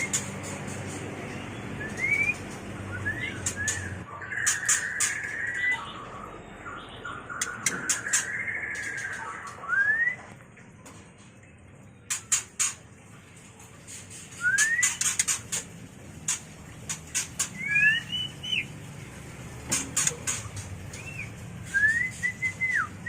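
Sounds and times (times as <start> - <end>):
bird chattering calls: 0.0 - 9.7, 14.0 - 18.7, 19.7 - 21.4
bird clicking chips: 14.3 - 15.7, 19.7 - 22.9
bird rising whistles: 14.4 - 15.1.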